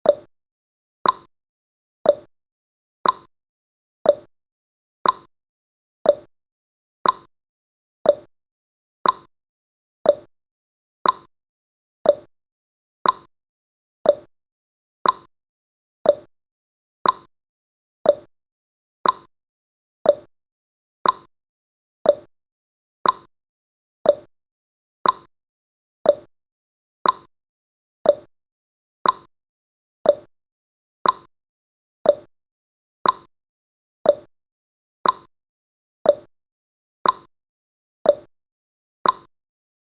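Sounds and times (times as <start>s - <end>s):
clock tick-tock: 0.0s - 0.3s, 1.0s - 1.3s, 2.0s - 2.3s, 3.0s - 3.3s, 4.0s - 4.3s, 5.0s - 5.3s, 6.0s - 6.3s, 7.0s - 7.3s, 8.0s - 8.3s, 9.0s - 9.3s, 10.0s - 10.3s, 11.0s - 11.3s, 12.0s - 12.3s, 13.0s - 13.3s, 14.0s - 14.3s, 15.0s - 15.3s, 16.0s - 16.3s, 17.0s - 17.3s, 18.0s - 18.3s, 19.0s - 19.3s, 20.0s - 20.3s, 21.0s - 21.3s, 22.0s - 22.3s, 23.0s - 23.3s, 24.0s - 24.3s, 25.0s - 25.3s, 26.0s - 26.3s, 27.0s - 27.3s, 28.0s - 28.3s, 29.0s - 29.3s, 30.0s - 30.3s, 31.0s - 31.3s, 32.0s - 32.3s, 33.0s - 33.3s, 34.0s - 34.3s, 35.0s - 35.3s, 36.0s - 36.3s, 37.0s - 37.3s, 38.0s - 38.3s, 39.0s - 39.3s.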